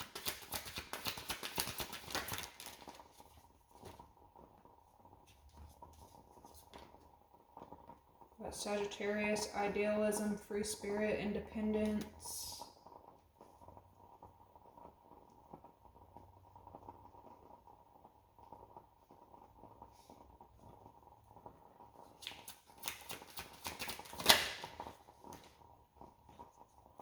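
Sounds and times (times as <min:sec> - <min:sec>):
cards clicking and rustling: 0:00.0 - 0:03.2, 0:22.2 - 0:25.5
card flicks and snaps: 0:22.2 - 0:24.7.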